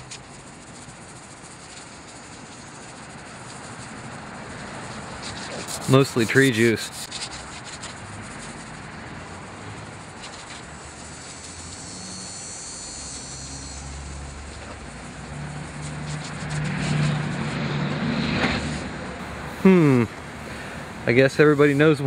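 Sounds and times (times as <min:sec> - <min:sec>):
distant engine droning: 0:08.0 - 0:22.0.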